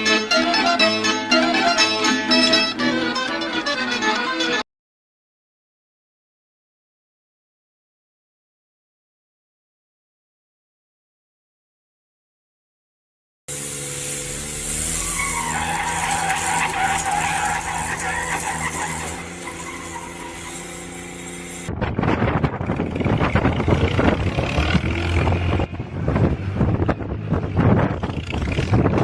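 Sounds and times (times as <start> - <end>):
high squeal sliding down: 13.5 - 21.7
vehicle engine running: 13.5 - 29.0.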